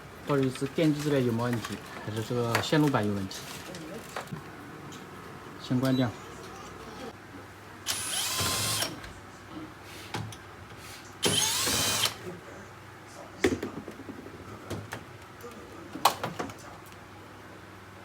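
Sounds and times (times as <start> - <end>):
cordless screwdriver spinning: 7.9 - 8.9, 11.2 - 12.2.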